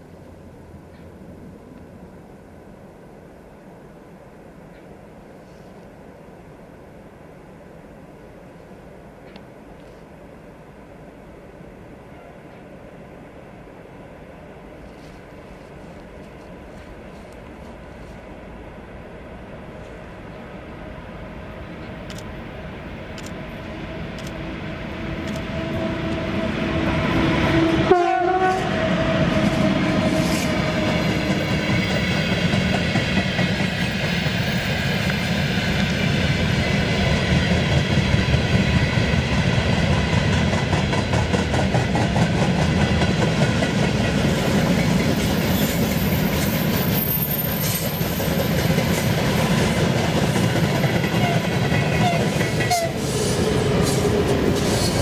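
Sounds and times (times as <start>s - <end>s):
train wheels clacking on rails: 24.0s - 55.0s
locomotive horn: 25.5s - 30.9s, 52.0s - 53.2s.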